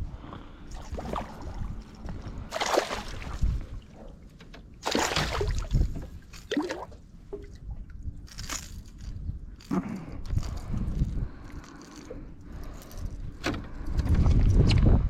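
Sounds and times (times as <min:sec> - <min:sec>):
water splashing against boat: 0:00.7 - 0:08.0
low rumble: 0:07.0 - 0:15.0.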